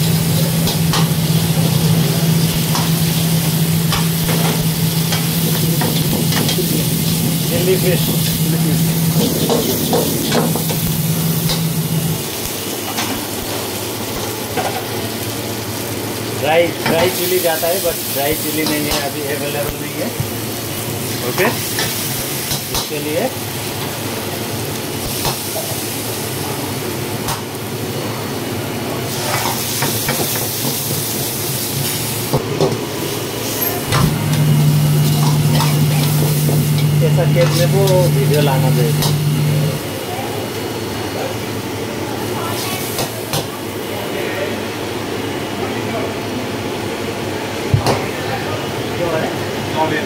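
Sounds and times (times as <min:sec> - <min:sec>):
chicken sizzling in a pan: 0:00.0 - 0:28.3, 0:29.0 - 0:32.4, 0:33.0 - 0:40.6, 0:42.1 - 0:44.0
low hum: 0:33.9 - 0:39.8.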